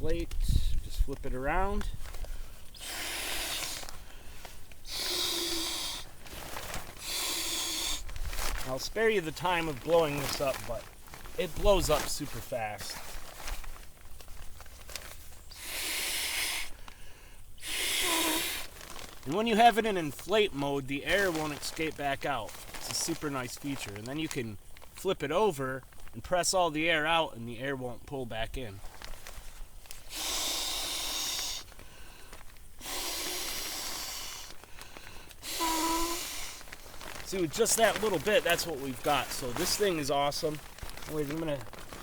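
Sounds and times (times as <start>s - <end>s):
breath blown into valve: 2.7s - 3.9s, 4.8s - 6.1s, 7.0s - 8.0s, 15.5s - 16.8s, 17.6s - 18.7s, 30.0s - 32.2s, 32.8s - 36.6s
handling clicks and rustles: 8.0s - 15.5s, 36.6s - 42.0s.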